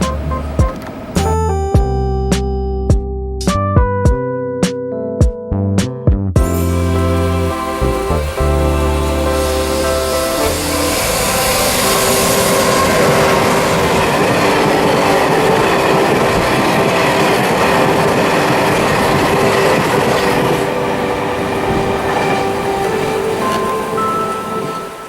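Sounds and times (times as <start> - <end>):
steady hum: 6.4 - 24.0
train wheels clattering on rails: 10.9 - 25.0.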